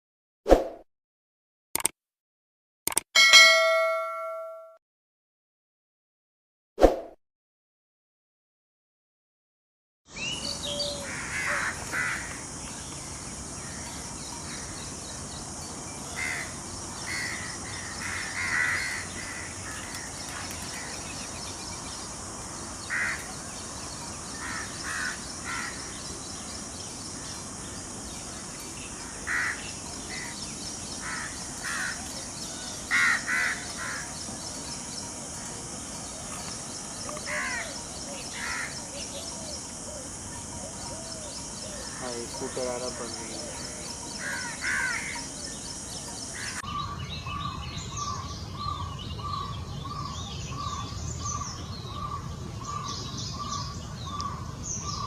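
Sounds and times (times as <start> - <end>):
harsh crow-like bird calls: 10.7 - 12.5, 16.1 - 21.2, 22.9 - 23.3, 24.3 - 26.0, 29.0 - 30.4, 31.0 - 32.0, 32.7 - 34.2, 37.1 - 38.8, 43.5 - 45.3.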